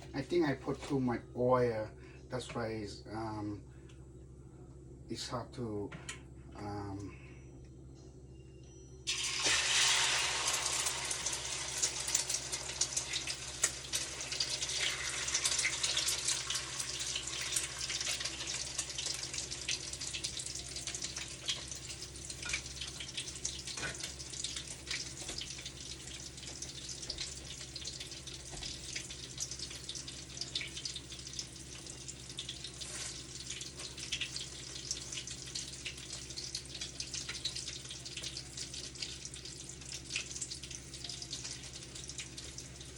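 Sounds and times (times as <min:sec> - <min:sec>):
food sizzling in oil: 0:09.1 - 0:42.9.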